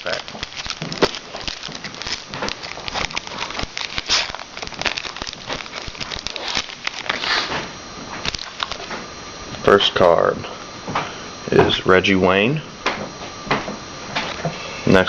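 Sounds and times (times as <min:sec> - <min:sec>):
card pack wrapper tearing: 0:00.0 - 0:07.5, 0:08.2 - 0:08.9
wrapper crinkling: 0:00.0 - 0:07.6, 0:08.2 - 0:09.0.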